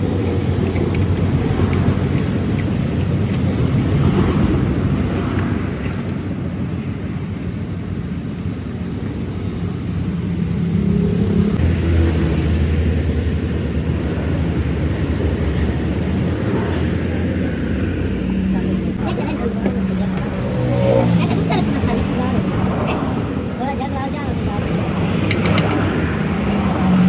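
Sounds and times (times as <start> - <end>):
engine humming: 8.7 - 27.0.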